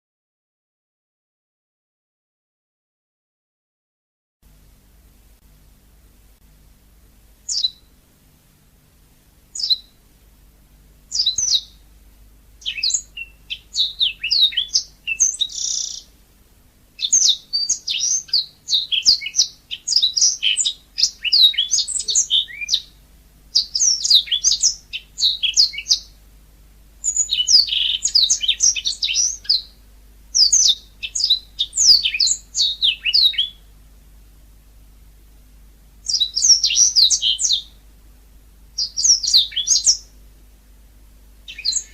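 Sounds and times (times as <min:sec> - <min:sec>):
canary singing: 0:07.5 - 0:07.9, 0:09.5 - 0:10.0, 0:11.1 - 0:11.9, 0:12.6 - 0:16.2, 0:17.0 - 0:26.2, 0:27.0 - 0:33.8, 0:36.0 - 0:37.8, 0:38.8 - 0:40.2, 0:41.4 - 0:41.9.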